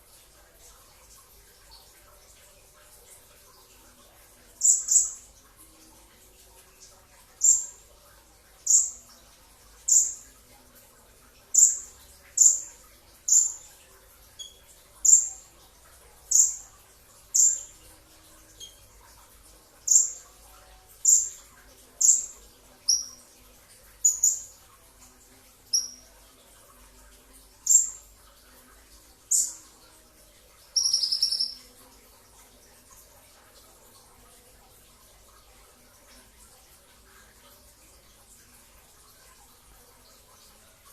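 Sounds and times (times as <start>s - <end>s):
bird calling high falling chirps: 30.8s - 31.6s.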